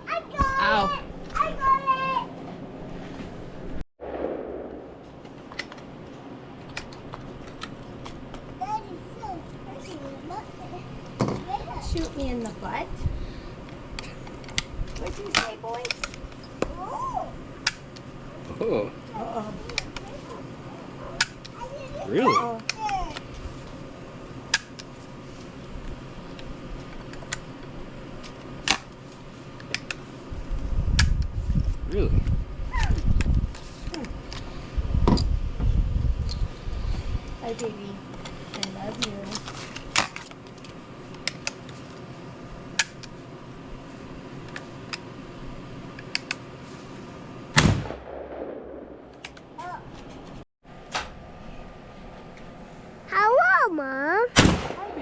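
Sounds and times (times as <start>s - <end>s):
faint steady background noise: 0.0s - 55.0s
loud gunshot: 4.0s - 5.2s, 47.5s - 49.1s, 54.4s - 55.0s.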